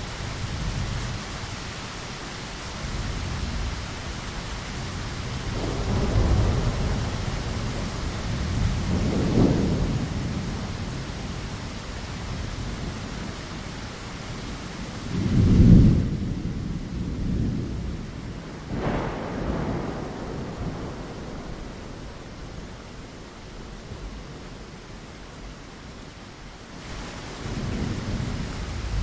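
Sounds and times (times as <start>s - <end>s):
steady rain: 0.0s - 29.0s
thunder rumbling: 4.7s - 13.3s, 15.0s - 24.7s, 26.9s - 29.0s.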